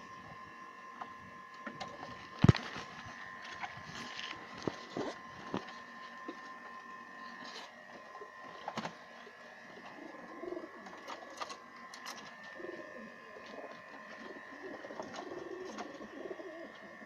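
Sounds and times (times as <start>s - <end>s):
faint high hum: 0.0s - 17.0s
pigeons cooing: 8.1s - 17.0s.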